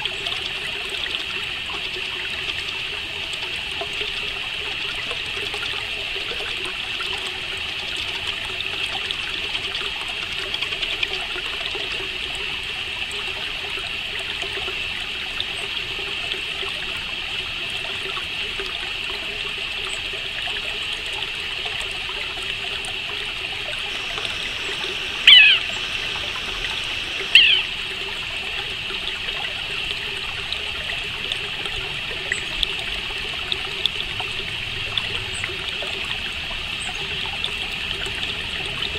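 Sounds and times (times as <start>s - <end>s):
bird calls sweeping downward: 23.7s - 28.0s
crickets chirring: 23.7s - 28.0s.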